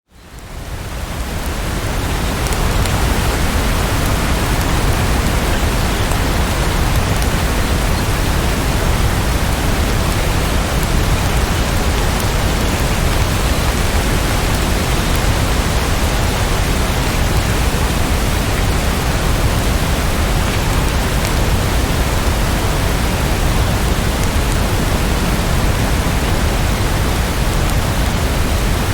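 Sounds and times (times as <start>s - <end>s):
steady rain hiss: 0.2s - 28.9s.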